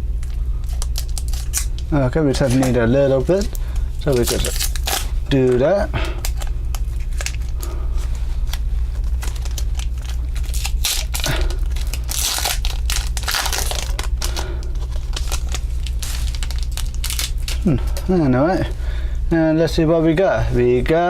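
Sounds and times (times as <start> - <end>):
plastic wrapper crackling: 0.2 - 7.7, 8.4 - 18.1
wrapper tearing rip: 0.7 - 1.8, 2.4 - 7.6, 9.0 - 17.8.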